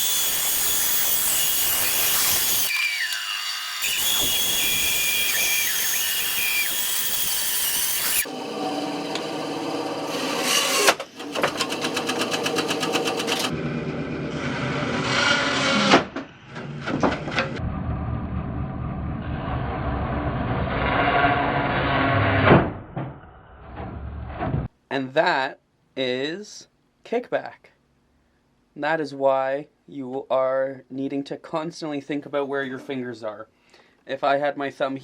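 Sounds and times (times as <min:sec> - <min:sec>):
bandsaw cutting wood: 0:00.0 - 0:13.6, 0:14.2 - 0:16.2.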